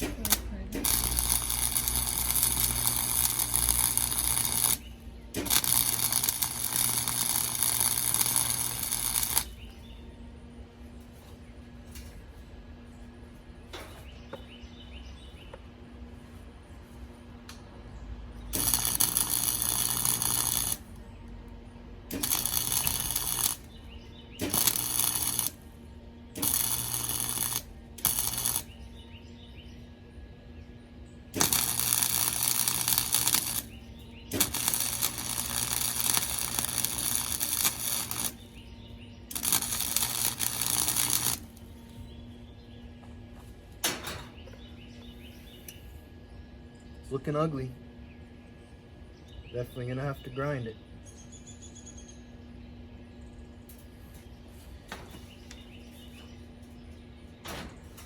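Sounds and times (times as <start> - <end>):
electric arc welder crackling: 0.0 - 9.9, 18.4 - 21.2, 22.0 - 28.9, 31.3 - 42.2, 43.7 - 44.6, 53.7 - 58.0.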